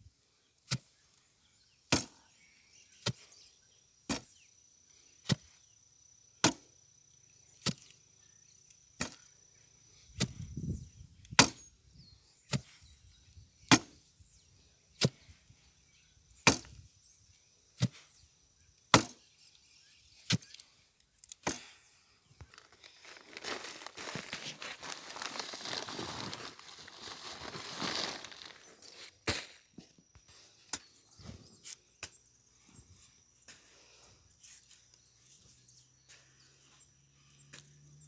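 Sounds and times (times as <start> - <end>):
digging tool striking hard ground: 6.4 - 6.6, 11.4 - 11.6, 13.7 - 14.0, 16.4 - 16.8, 18.9 - 19.2, 21.4 - 21.7.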